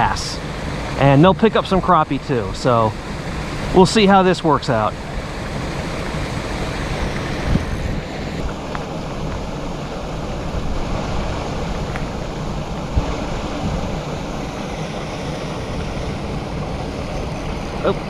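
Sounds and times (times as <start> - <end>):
wind buffeting microphone: 4.9 - 18.0.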